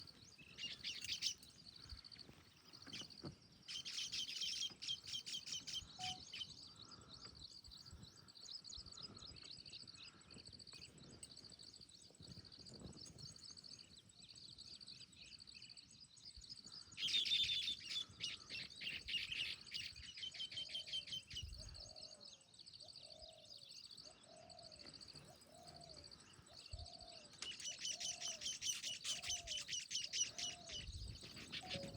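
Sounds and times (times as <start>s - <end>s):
weaver birds chattering: 0.0s - 31.9s
bird repeating low note: 31.4s - 31.9s.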